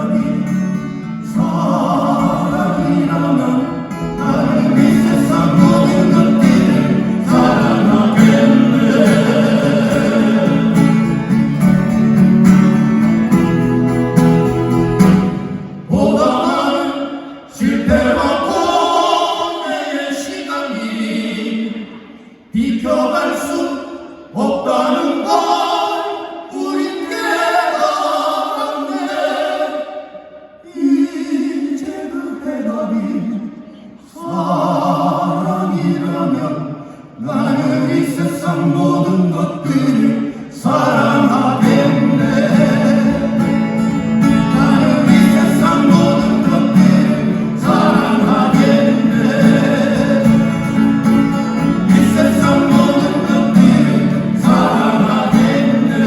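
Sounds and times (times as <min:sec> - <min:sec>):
male vocal quartet singing: 0:00.0 - 0:13.6, 0:15.2 - 0:56.0
acoustic guitars: 0:00.0 - 0:56.0.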